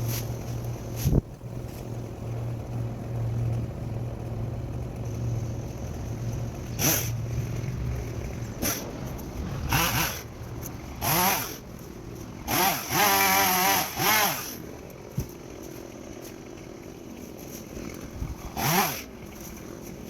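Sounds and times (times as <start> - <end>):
chainsaw revving: 5.0 - 11.7, 12.4 - 19.5.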